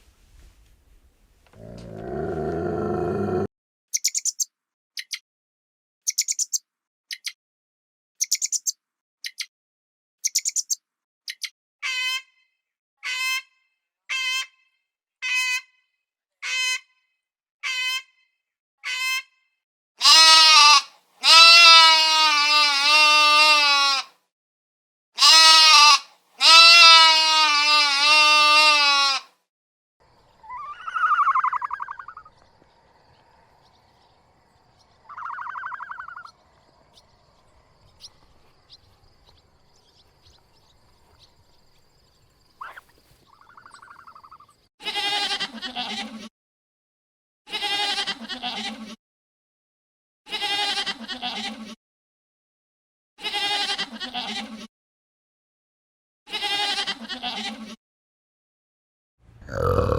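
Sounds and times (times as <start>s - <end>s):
livestock bleating: 1.6s - 3.5s, 20.0s - 24.1s, 25.2s - 29.2s, 44.8s - 46.3s, 47.5s - 49.0s, 50.3s - 51.8s, 53.2s - 54.7s, 56.3s - 57.7s, 59.4s - 59.9s.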